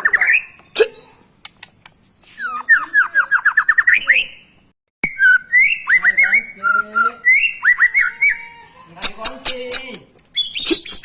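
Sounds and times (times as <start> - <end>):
bird singing whistled phrases: 2.2 - 4.4, 5.0 - 8.5, 10.3 - 11.0.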